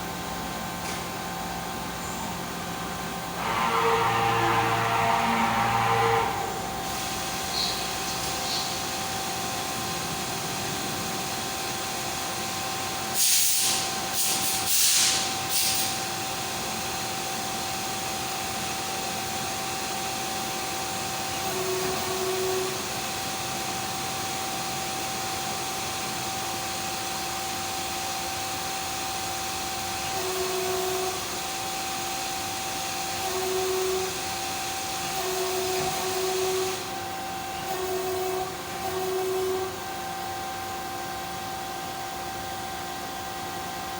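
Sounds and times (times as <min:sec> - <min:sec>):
machine motor whine: 0:02.6 - 0:12.4, 0:30.1 - 0:40.2
loud bursts of hissing: 0:13.1 - 0:16.2.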